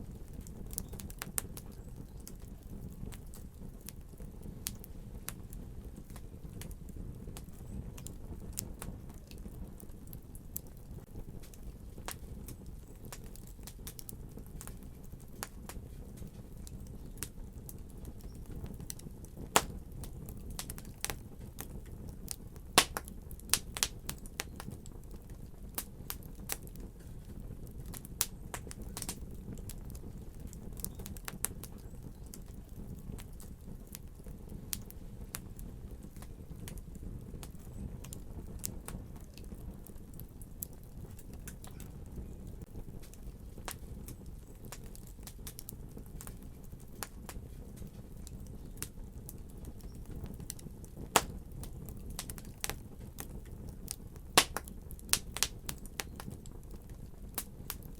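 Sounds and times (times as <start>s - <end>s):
fire crackling and popping: 0.0s - 57.9s.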